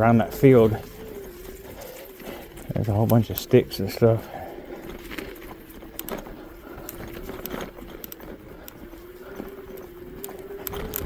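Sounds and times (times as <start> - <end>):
electric motor whining: 0.0 - 11.0
tyres clicking over sticks: 0.0 - 11.0.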